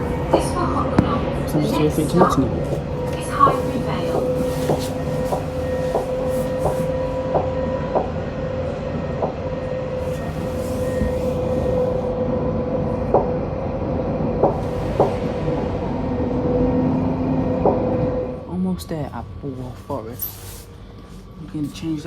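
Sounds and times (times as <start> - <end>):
tram drive whine: 0.0 - 22.0
low rolling rumble: 9.9 - 20.0.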